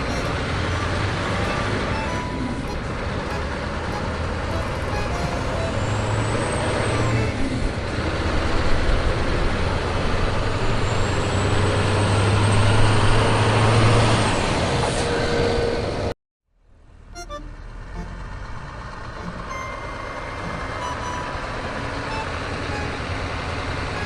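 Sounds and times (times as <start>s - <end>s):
truck engine running: 0.0s - 10.8s, 16.9s - 24.0s.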